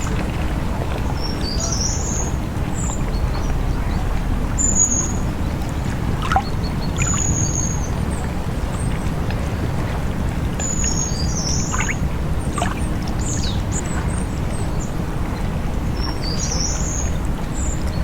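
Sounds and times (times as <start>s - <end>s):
low rush of water: 0.0s - 18.0s
birds chirping: 1.1s - 8.2s, 10.7s - 13.9s.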